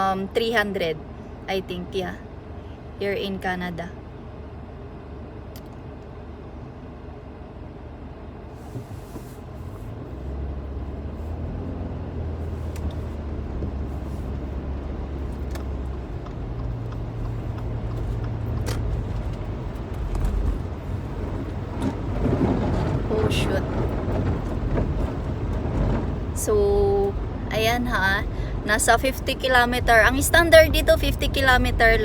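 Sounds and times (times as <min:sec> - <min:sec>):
car engine hum: 0:00.0 - 0:32.0
tyre rumble on wet road: 0:08.6 - 0:32.0.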